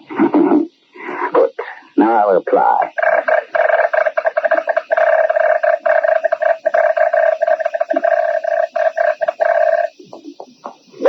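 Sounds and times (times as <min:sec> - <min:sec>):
morse code beeps: 0:03.1 - 0:11.0.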